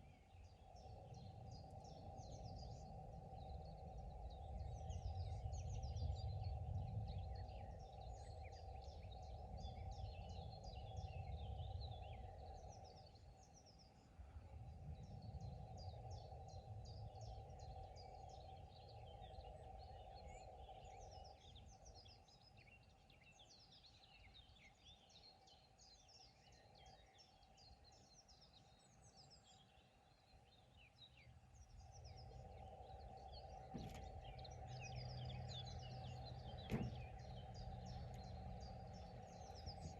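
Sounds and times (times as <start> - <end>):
low rumble and hum: 0.1 - 13.5, 31.5 - 39.9
birds chirping and trilling: 15.0 - 39.9.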